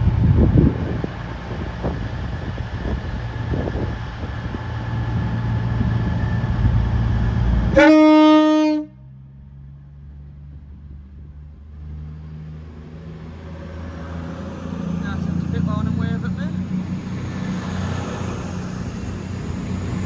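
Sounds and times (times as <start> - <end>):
low engine hum: 0.0 - 20.0
train rumbling: 0.0 - 20.0
train horn: 7.7 - 9.1.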